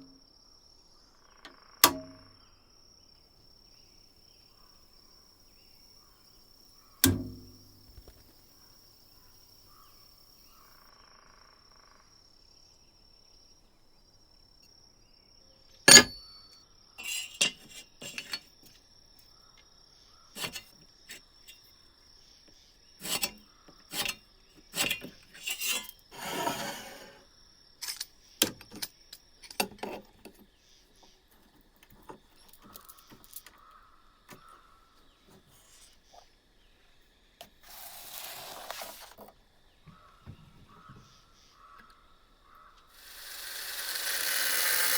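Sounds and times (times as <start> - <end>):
metal tool knocks and clicks: 1.8 - 2.3, 7.0 - 8.2, 15.9 - 18.4, 27.8 - 30.4
metal scrape: 17.0 - 18.4, 23.0 - 24.2, 24.8 - 27.2.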